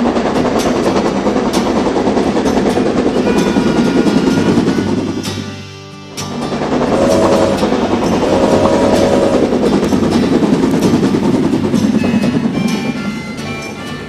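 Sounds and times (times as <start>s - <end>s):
toy train clattering rumble: 0.0s - 14.0s
short tones: 6.8s - 9.6s.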